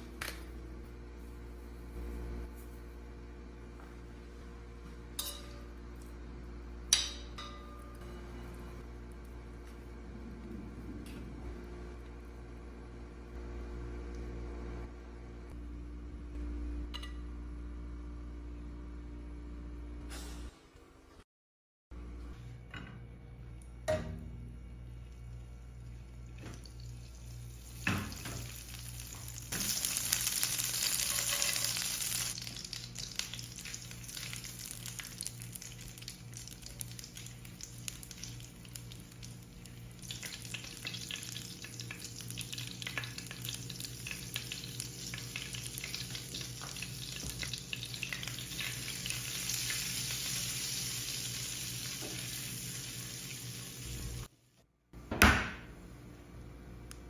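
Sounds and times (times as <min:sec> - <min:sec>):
steady low hum: 0:00.0 - 0:20.5
food sizzling in a pan: 0:26.7 - 0:54.3.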